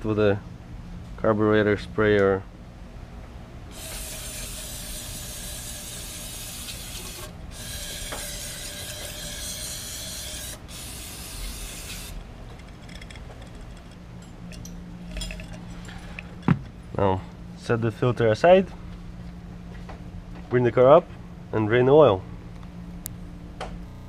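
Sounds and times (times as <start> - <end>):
aerosol can spraying: 3.7 - 12.2.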